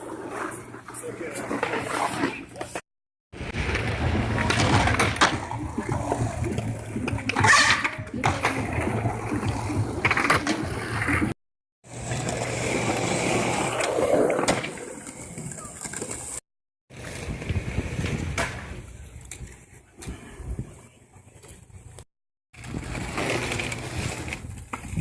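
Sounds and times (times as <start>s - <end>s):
skateboard wheels rolling on concrete: 0.0s - 25.0s
skateboard clacks: 3.6s - 11.3s.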